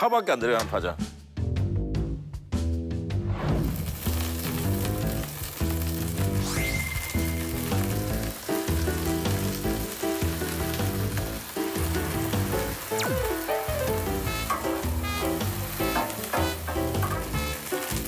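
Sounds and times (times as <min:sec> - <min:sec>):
background music: 0:00.0 - 0:18.0
pancake sizzling on a griddle: 0:03.6 - 0:18.0.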